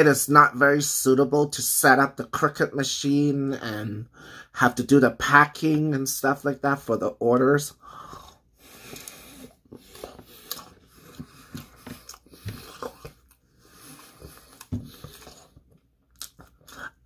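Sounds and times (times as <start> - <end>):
breathing: 4.1 - 4.6, 7.8 - 12.7, 13.5 - 15.3
person chewing pizza: 7.8 - 17.0.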